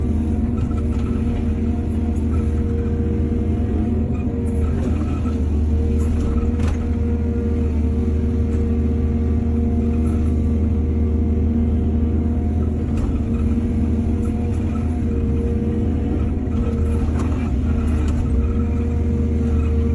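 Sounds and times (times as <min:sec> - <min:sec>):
heavy diesel engine rumbling: 0:00.0 - 0:19.9.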